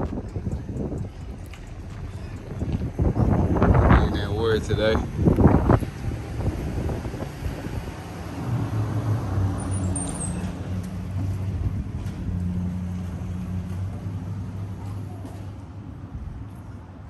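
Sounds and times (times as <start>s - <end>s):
engine humming steadily: 0.0s - 17.0s
brief high squeak: 9.7s - 10.6s.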